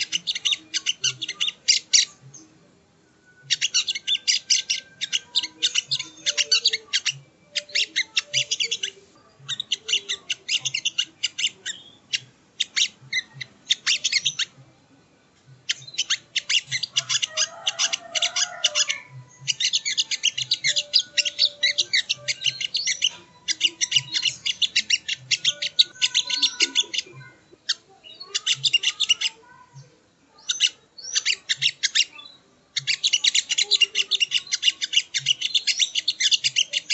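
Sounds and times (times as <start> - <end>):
bird chattering: 0.0 - 2.2, 3.4 - 14.6, 15.6 - 36.9.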